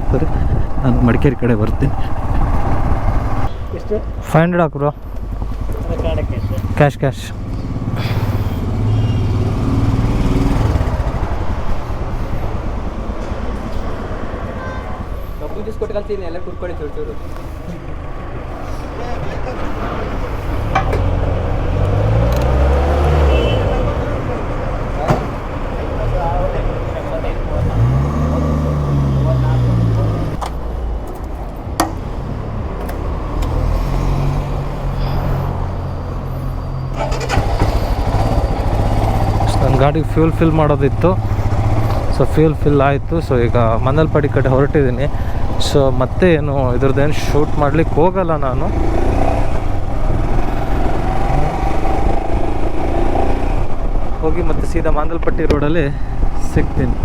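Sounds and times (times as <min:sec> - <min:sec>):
vehicle engine idling: 0:00.0 - 0:56.8
motorcycle engine running: 0:05.0 - 0:13.2, 0:37.0 - 0:42.6
sharp clicks: 0:21.8 - 0:22.6.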